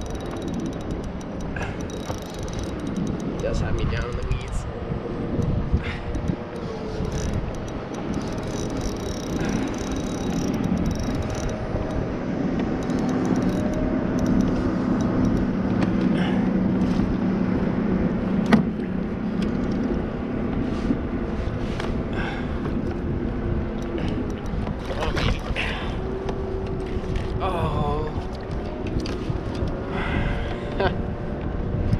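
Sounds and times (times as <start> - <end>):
sharp clicks: 0.0 - 4.7, 5.4 - 12.0, 12.6 - 16.1
low motor hum: 0.0 - 31.9.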